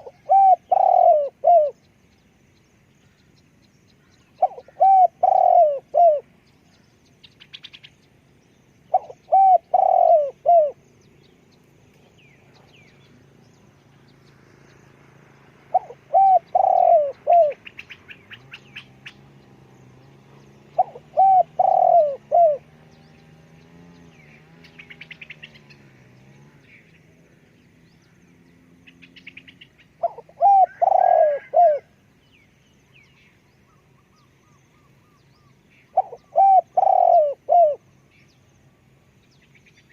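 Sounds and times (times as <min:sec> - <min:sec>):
dove cooing: 0:00.0 - 0:01.8, 0:04.4 - 0:06.3, 0:08.9 - 0:10.8, 0:15.6 - 0:18.6, 0:20.6 - 0:22.8, 0:30.0 - 0:32.0, 0:35.9 - 0:37.8
small birds chirping faintly: 0:00.0 - 0:39.9.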